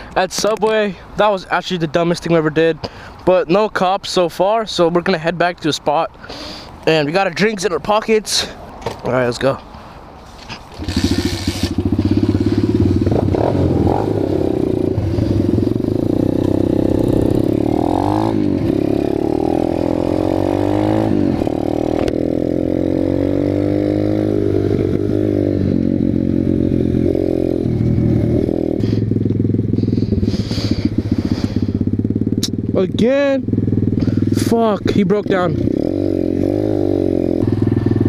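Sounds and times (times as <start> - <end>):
pit bike engine revving: 10.7 - 38.0.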